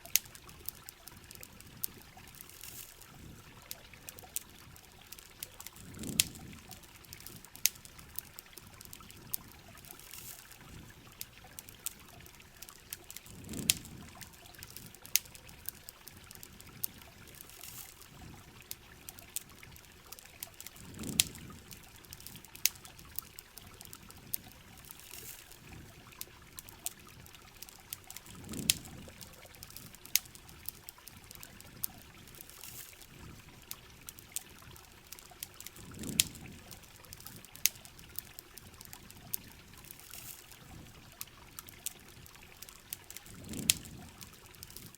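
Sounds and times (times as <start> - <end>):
campfire crackling and popping: 0.0 - 44.9
steady rain: 0.0 - 44.9
water trickling: 0.0 - 44.9.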